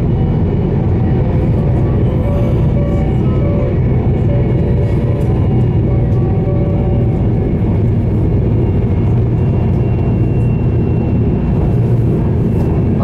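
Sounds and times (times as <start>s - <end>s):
wheels rumbling on rails: 0.0s - 13.0s.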